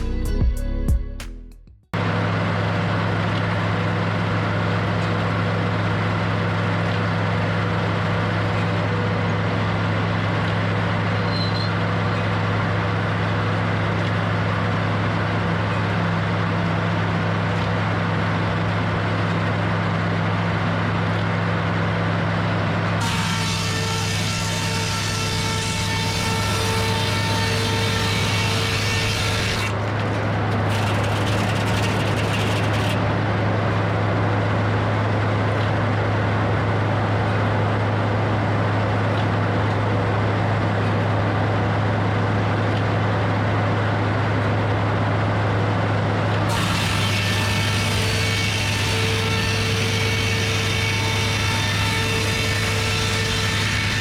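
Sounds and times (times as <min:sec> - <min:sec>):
saw blade whine: 0:00.0 - 0:00.4, 0:02.0 - 0:38.0, 0:46.4 - 0:54.0
sawmill engine hum: 0:02.0 - 0:54.0
blade cutting through wood: 0:23.0 - 0:29.8, 0:30.6 - 0:33.0, 0:46.5 - 0:54.0.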